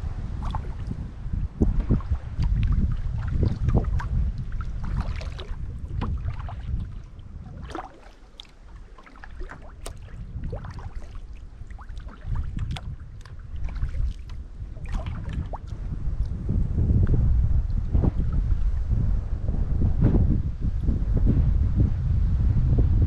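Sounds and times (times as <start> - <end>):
wind buffeting microphone: 0.0 - 23.0
paddle splashing in water: 0.3 - 16.5.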